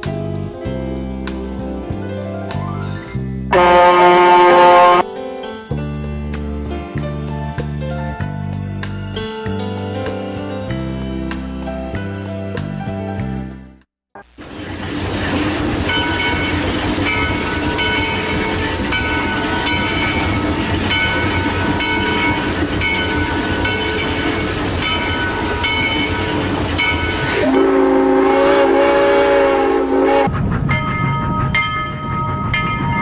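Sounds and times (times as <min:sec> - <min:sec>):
train rumbling: 0:03.2 - 0:05.0, 0:14.4 - 0:33.0
train horn chord: 0:03.5 - 0:05.0, 0:25.3 - 0:30.3.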